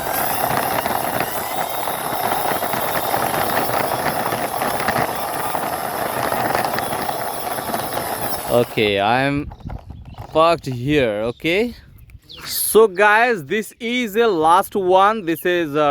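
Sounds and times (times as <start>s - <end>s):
plastic toy wheels rattling: 0.0s - 10.9s.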